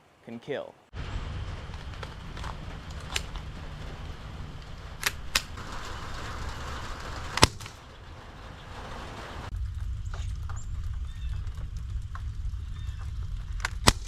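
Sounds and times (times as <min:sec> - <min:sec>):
low rumble: 0:00.9 - 0:14.0
air gun firing crack: 0:07.2 - 0:07.8, 0:13.6 - 0:14.0.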